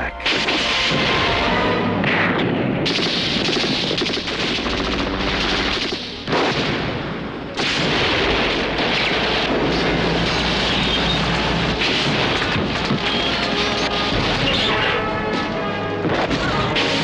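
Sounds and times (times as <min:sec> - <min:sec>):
rapid automatic gunfire: 0:02.8 - 0:06.8.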